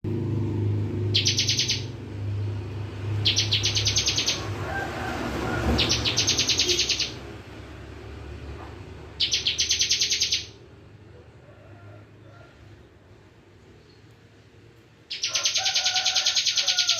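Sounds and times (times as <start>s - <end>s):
bird singing rapid trill: 1.1s - 2.0s, 3.2s - 4.6s, 5.7s - 7.3s, 9.2s - 10.6s, 15.1s - 16.9s.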